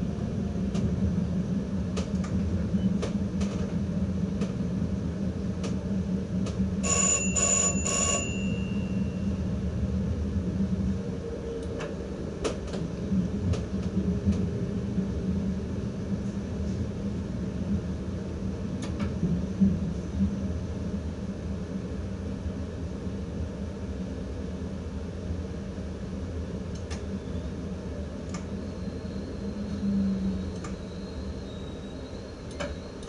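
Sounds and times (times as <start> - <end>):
train cab rumble: 0.0 - 33.0
electric bell ringing: 6.8 - 9.2.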